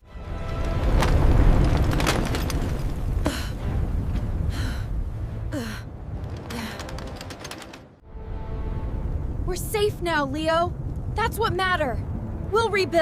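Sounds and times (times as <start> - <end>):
deep volcanic rumble: 0.2 - 7.5.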